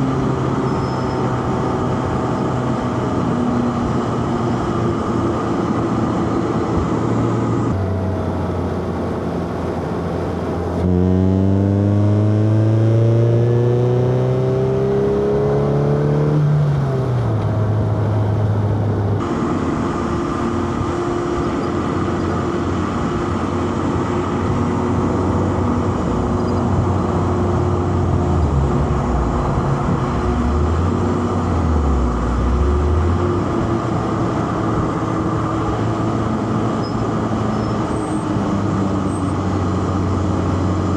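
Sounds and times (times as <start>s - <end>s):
road and tyre noise: 0.0s - 40.9s
car engine revving: 7.4s - 19.8s, 23.0s - 40.9s.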